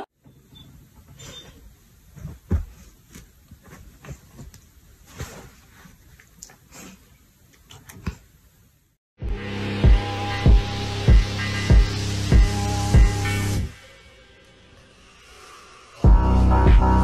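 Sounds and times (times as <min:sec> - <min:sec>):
animals rustling on couch: 0:00.7 - 0:07.0
music with a beat: 0:09.2 - 0:13.7, 0:16.0 - 0:17.0.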